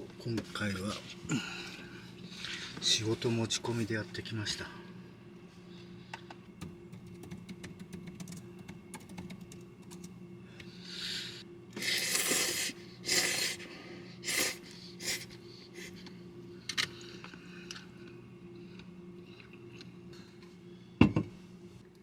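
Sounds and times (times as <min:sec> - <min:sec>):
steady low hum: 0:00.0 - 0:22.0
computer keyboard typing: 0:06.6 - 0:10.1.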